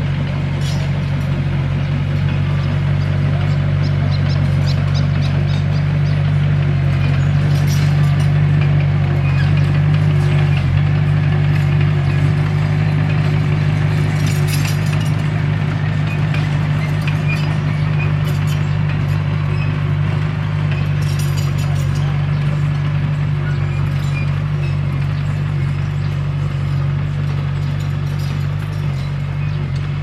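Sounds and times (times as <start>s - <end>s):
bulldozer diesel engine running: 0.0s - 30.0s
light metallic clinks: 20.7s - 22.2s, 23.8s - 29.6s.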